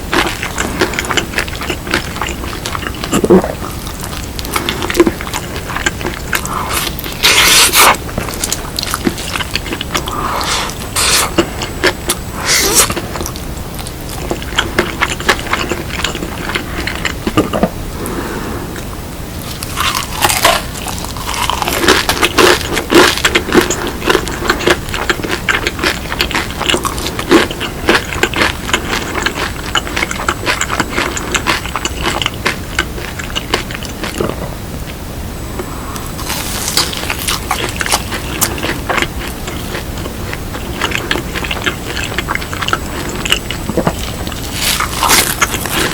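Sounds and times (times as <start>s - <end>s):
crunching and chewing fried chicken: 0.0s - 18.2s, 19.4s - 35.0s, 35.6s - 45.9s.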